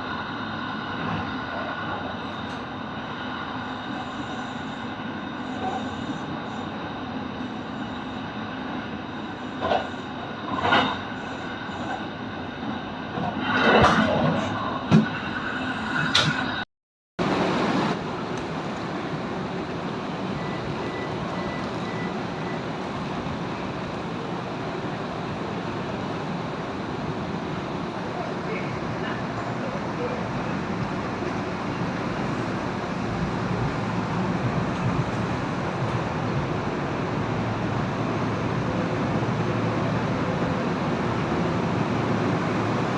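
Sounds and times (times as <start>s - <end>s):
brief squeal: 3.6s - 6.7s
train clanks: 9.3s - 12.1s, 13.1s - 16.6s, 27.9s - 42.9s
electric train running: 17.3s - 42.9s.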